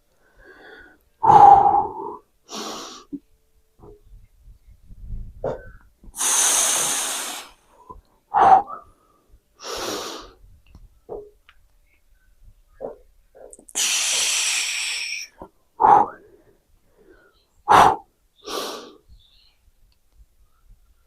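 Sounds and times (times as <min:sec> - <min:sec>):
man exhaling forcefully: 0:06.2 - 0:07.6, 0:13.7 - 0:16.2, 0:17.7 - 0:18.0.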